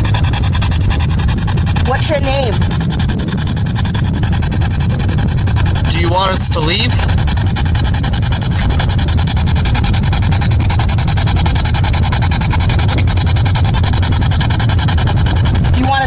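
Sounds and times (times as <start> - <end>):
low car rumble: 0.0 - 16.0
pulsing radio static: 0.0 - 16.0.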